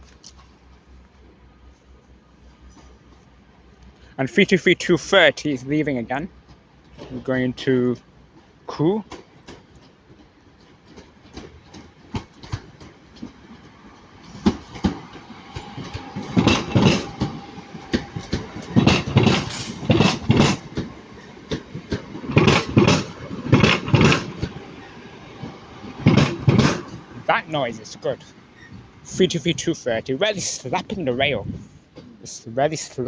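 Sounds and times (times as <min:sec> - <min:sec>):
train wheels clattering over track: 0:05.8 - 0:31.3.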